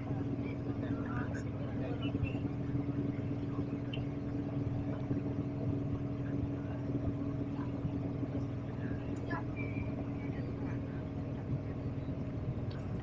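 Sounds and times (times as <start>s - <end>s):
vehicle running hum: 0.0s - 13.0s.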